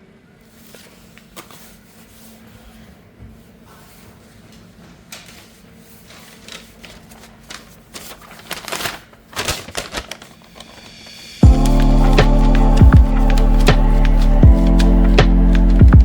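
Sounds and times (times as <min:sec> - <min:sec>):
loud music: 0:10.9 - 0:16.0.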